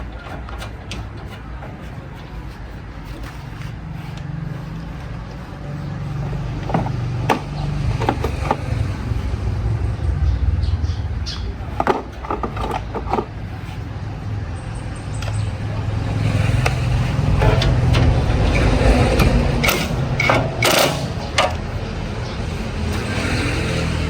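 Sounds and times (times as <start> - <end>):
sharp metallic clanks: 16.2 - 21.8.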